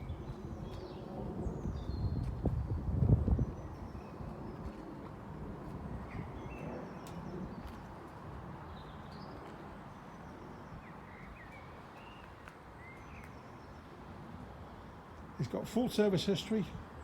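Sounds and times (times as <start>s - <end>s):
small birds chirping: 0.0s - 2.3s.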